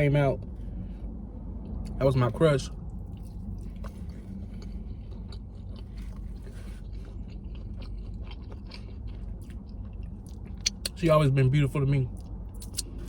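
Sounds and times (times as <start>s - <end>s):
steady low hum: 0.0s - 13.0s
person chewing food: 2.9s - 11.0s
wet mouth clicks: 10.6s - 11.0s.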